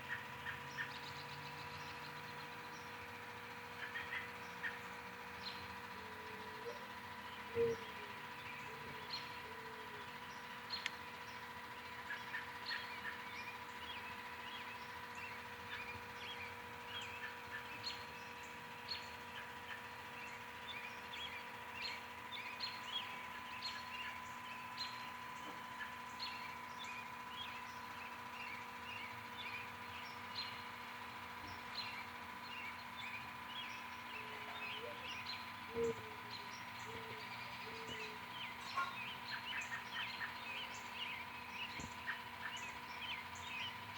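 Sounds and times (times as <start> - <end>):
faint steady hum: 0.0 - 43.9
songbirds chirping and twittering: 0.0 - 43.9
dove cooing: 6.0 - 10.0, 34.1 - 40.4.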